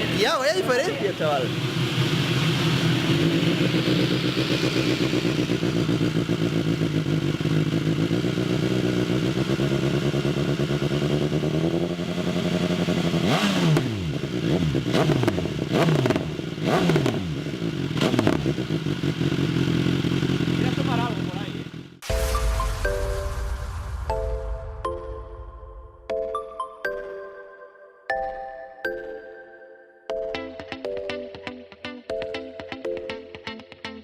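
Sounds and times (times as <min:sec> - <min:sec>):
engine throttle blips: 0:00.0 - 0:21.3
motorcycle engine idling: 0:00.0 - 0:22.0.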